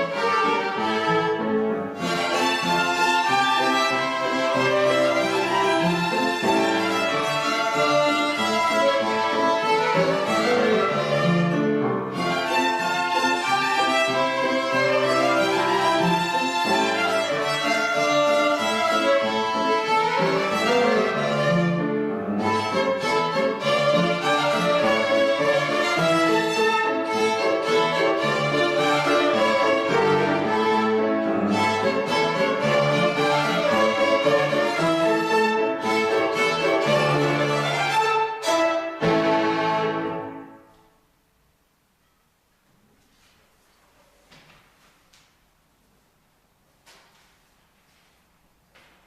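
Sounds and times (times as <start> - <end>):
violin and strings music: 0.0 - 40.7.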